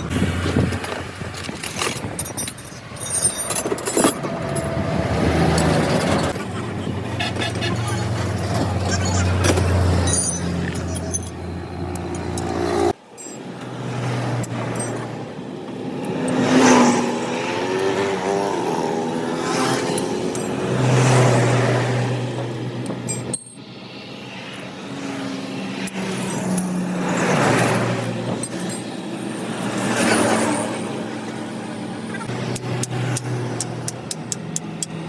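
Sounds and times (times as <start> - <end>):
road traffic passing close by: 0.0 - 35.0.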